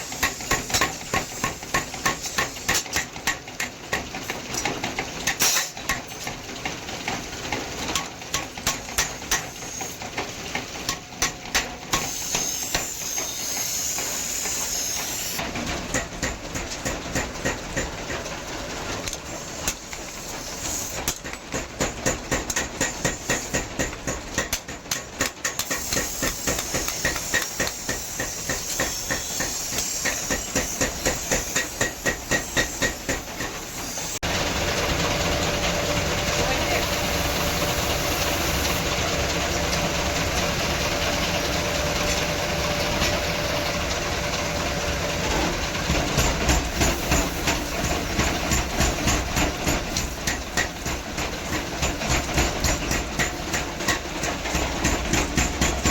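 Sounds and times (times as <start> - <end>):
hammer striking iron: 0.2 - 6.3, 7.9 - 9.6, 10.8 - 13.3, 15.9 - 18.3, 21.0 - 33.7, 46.1 - 55.9.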